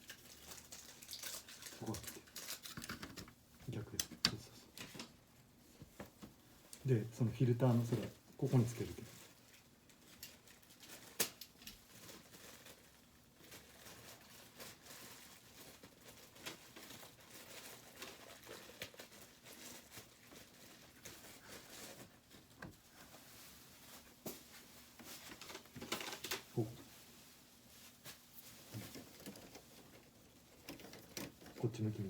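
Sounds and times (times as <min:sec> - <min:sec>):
plastic parts clicking and knocking: 0:02.0 - 0:05.2, 0:28.8 - 0:31.7
soft rustling: 0:11.8 - 0:32.0.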